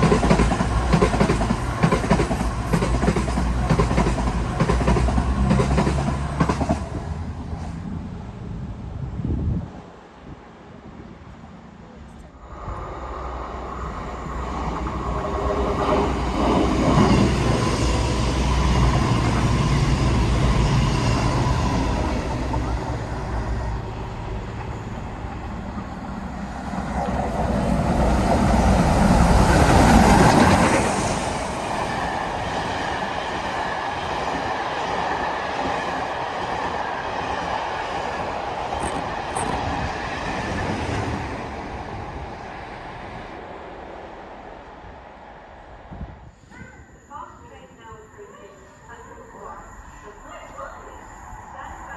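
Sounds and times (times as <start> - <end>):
diesel train engine: 0.0 - 51.9
train wheel and rail noise: 0.0 - 51.9.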